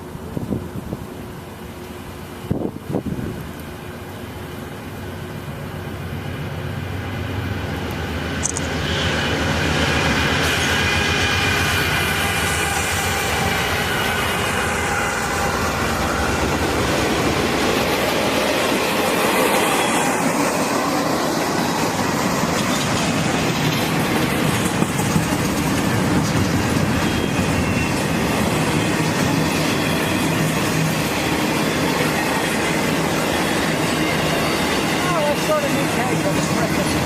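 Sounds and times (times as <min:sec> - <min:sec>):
train wheel squeal: 0:03.2 - 0:37.0
train wheels clattering on rails: 0:07.9 - 0:37.0.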